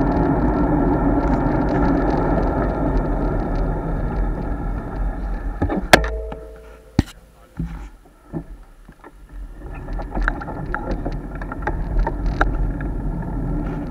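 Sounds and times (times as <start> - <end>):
road noise: 0.0 - 8.0.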